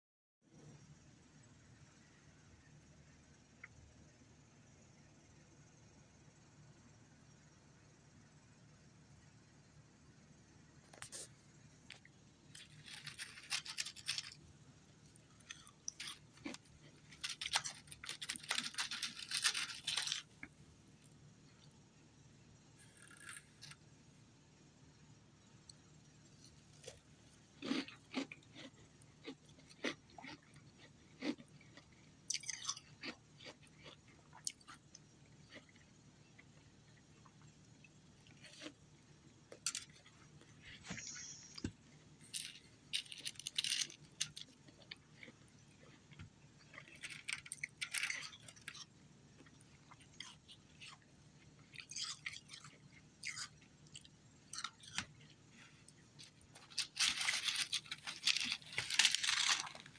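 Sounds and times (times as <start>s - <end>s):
person crunching ice: 12.6s - 14.4s, 15.5s - 20.3s, 56.6s - 59.9s.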